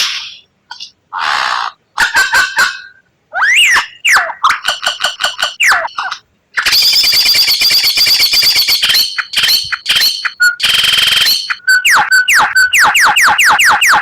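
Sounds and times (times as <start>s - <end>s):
bird singing varied song: 8.5s - 13.8s.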